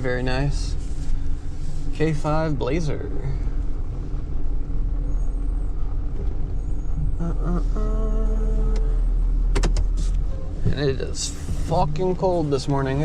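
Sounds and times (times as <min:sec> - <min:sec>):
truck engine rumbling: 0:00.0 - 0:13.0
steady pitched tone: 0:04.3 - 0:09.4.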